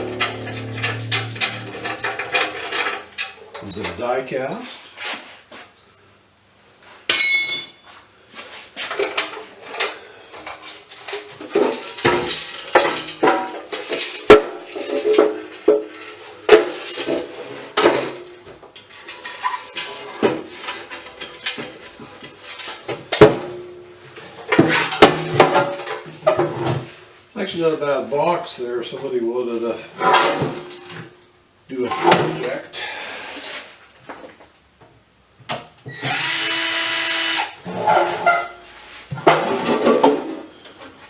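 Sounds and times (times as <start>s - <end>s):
sharp ringing knocks: 0.0s - 2.7s
metal parts clanking and rattling: 0.0s - 4.0s, 19.0s - 23.2s.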